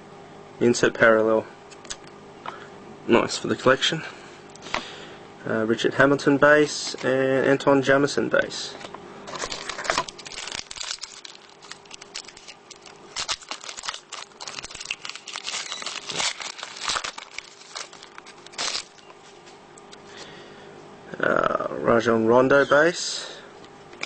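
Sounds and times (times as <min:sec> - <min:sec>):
cards being handled: 0:08.8 - 0:19.4
card pack wrapper crinkling: 0:09.3 - 0:19.1.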